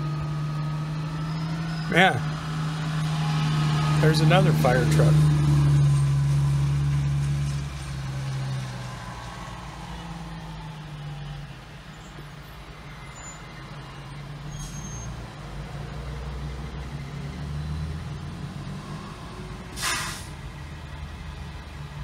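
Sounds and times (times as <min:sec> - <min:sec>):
diesel truck engine running: 0:00.0 - 0:12.8
air brakes hissing: 0:14.5 - 0:15.2, 0:19.7 - 0:20.4.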